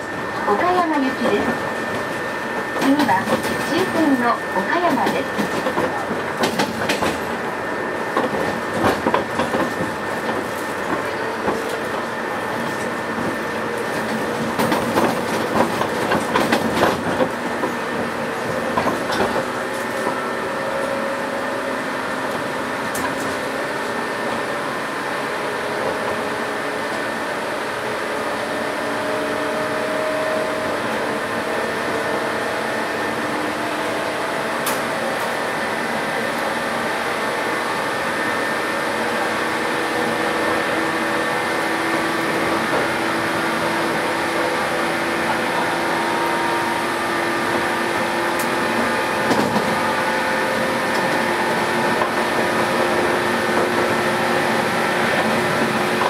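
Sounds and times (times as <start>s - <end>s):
train rumble: 0.0s - 56.0s
train wheels clattering over rail joints: 4.9s - 7.4s, 8.1s - 20.2s, 47.0s - 56.0s.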